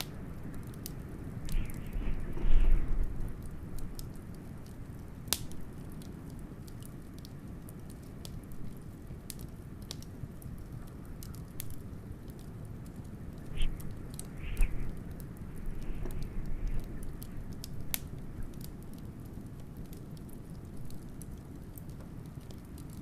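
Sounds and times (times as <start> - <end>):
blizzard wind rumble: 0.0 - 4.8, 12.9 - 20.8
wood fire crackling: 0.0 - 23.0.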